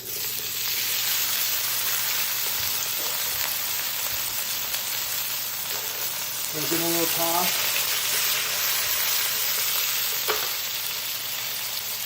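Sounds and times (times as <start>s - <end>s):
potatoes sizzling in oil: 0.0s - 12.0s.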